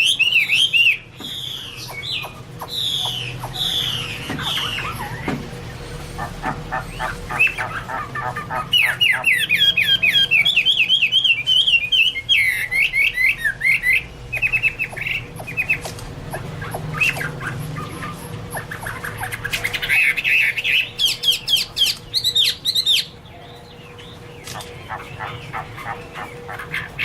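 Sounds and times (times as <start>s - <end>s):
bird singing whistled notes: 0.0s - 5.2s, 8.8s - 15.9s.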